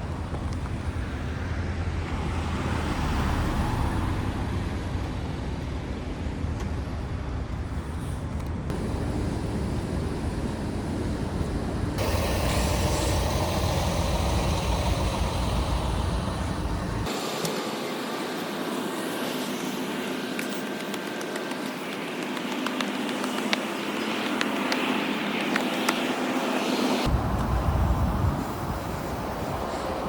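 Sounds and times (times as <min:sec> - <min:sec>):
vehicle road rumble: 0:00.0 - 0:17.1
road noise hiss: 0:00.0 - 0:30.0.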